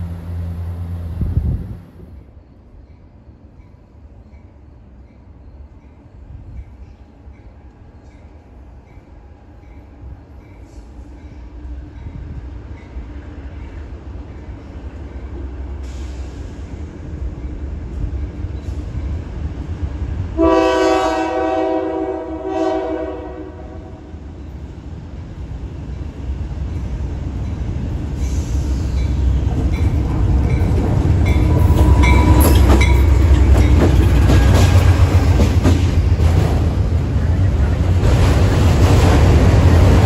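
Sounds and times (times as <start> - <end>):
engine and wheels rumbling: 0.0 - 2.5, 23.9 - 40.0
locomotive horn: 20.4 - 24.1
wheels clacking on rails: 25.8 - 40.0.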